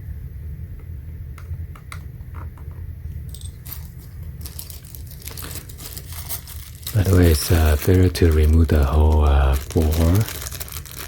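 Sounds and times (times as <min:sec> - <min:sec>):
steady low hum: 0:00.0 - 0:11.0
objects clicking and rattling: 0:03.3 - 0:11.0.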